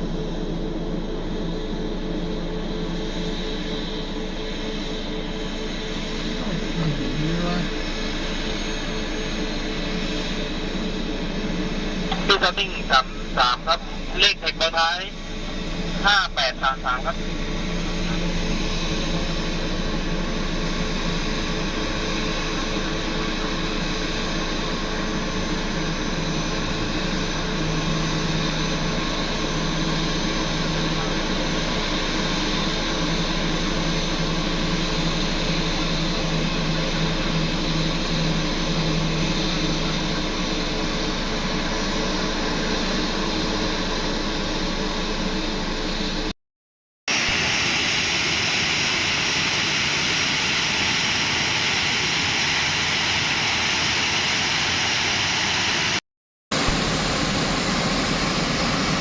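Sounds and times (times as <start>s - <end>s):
jet engine rushing: 2.7s - 23.3s, 47.1s - 59.0s.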